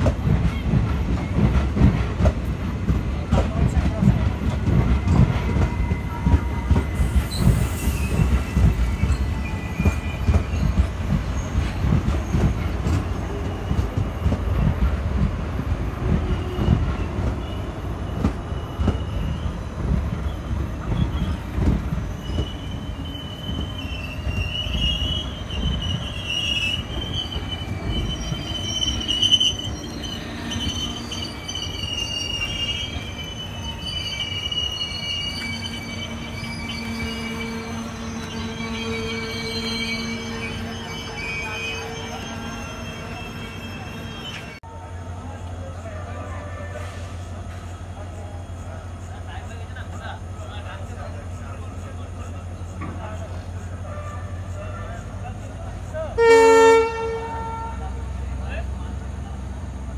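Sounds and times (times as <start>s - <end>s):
train wheels rumbling and knocking: 0.0s - 44.6s, 45.4s - 59.9s
high-pitched wheel and brake squeal: 5.0s - 11.8s, 16.3s - 44.6s.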